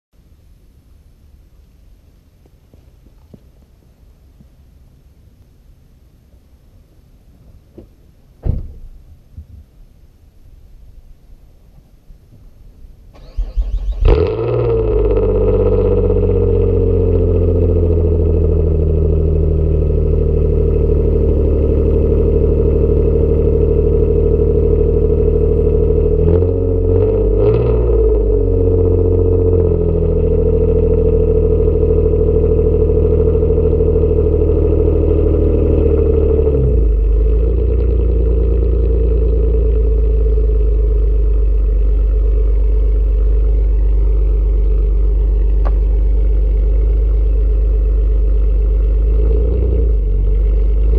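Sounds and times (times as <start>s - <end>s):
car exhaust idling: 13.2s - 50.9s.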